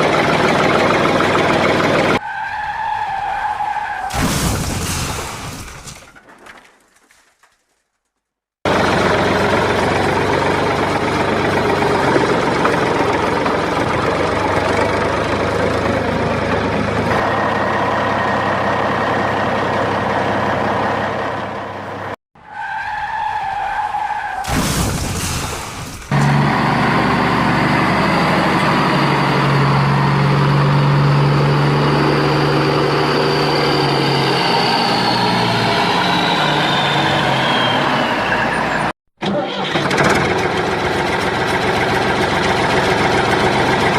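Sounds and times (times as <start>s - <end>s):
vehicle engine running: 0.0s - 2.2s, 8.7s - 22.2s, 40.0s - 43.9s.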